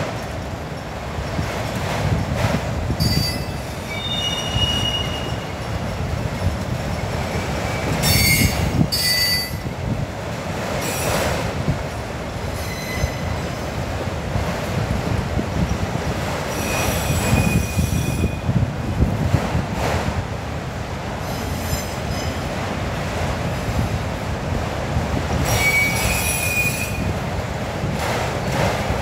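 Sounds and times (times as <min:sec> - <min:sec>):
train wheels rumbling on rail: 0:00.0 - 0:29.0
high-pitched wheel squeals: 0:03.0 - 0:05.7, 0:07.8 - 0:09.6, 0:12.6 - 0:13.3, 0:25.5 - 0:27.1.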